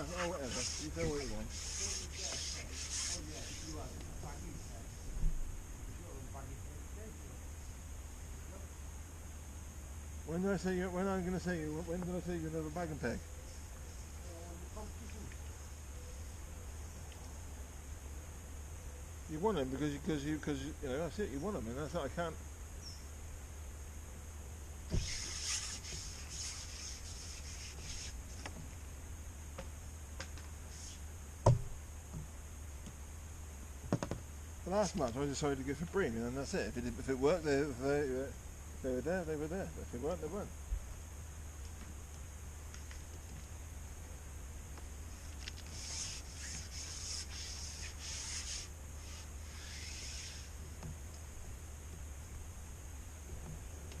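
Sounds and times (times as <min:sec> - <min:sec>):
handling rustling and rubbing: 0:00.0 - 0:05.5, 0:24.9 - 0:28.9, 0:44.8 - 0:51.4
low steady hum: 0:00.0 - 0:54.0
dull knocks: 0:31.4 - 0:32.3.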